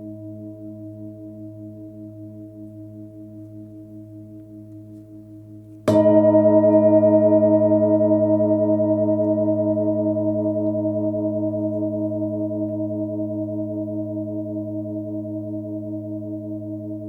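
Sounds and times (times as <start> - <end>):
singing bowl struck: 5.8 - 13.3
singing bowl ringing: 5.9 - 13.8.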